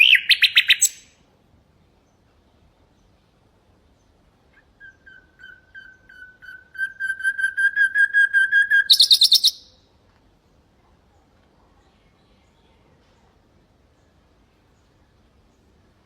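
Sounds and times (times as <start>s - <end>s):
nightingale singing: 0.0s - 1.2s, 3.9s - 9.8s.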